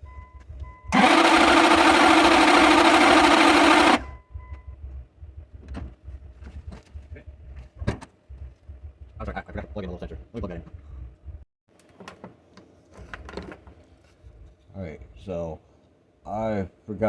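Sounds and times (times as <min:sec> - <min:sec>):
engine starter cranking: 0:00.9 - 0:04.1.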